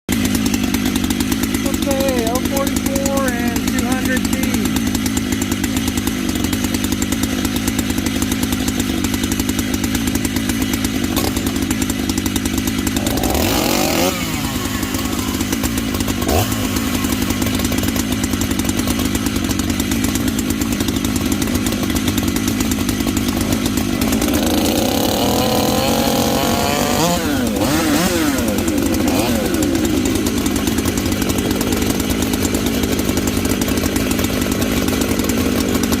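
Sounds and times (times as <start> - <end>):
chainsaw idling and revving: 0.1 - 36.0.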